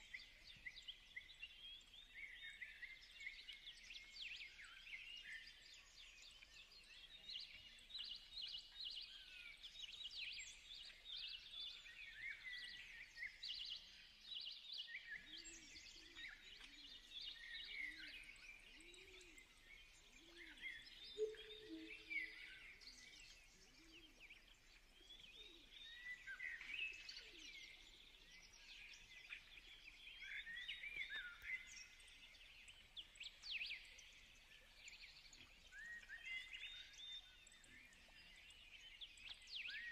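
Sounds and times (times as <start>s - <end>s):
faint birds chirping: 0.0s - 39.9s.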